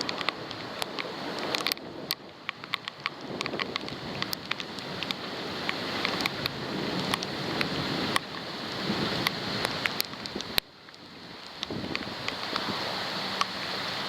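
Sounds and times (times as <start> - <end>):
rain and wind rushing: 0.0 - 14.0
raindrops tapping on camera: 0.0 - 14.0.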